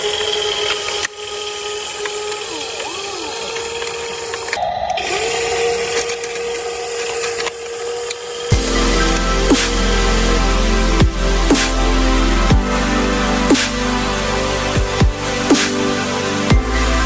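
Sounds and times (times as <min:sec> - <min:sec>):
electric motors whining: 0:00.0 - 0:17.0
electronic dance music: 0:08.5 - 0:17.0.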